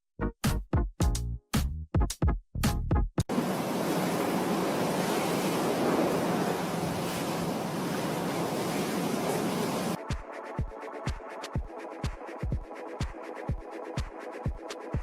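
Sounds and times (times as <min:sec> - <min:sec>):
electronic music with thumping beat: 0:00.4 - 0:03.3, 0:10.0 - 0:15.0
steady rushing noise: 0:03.3 - 0:10.0.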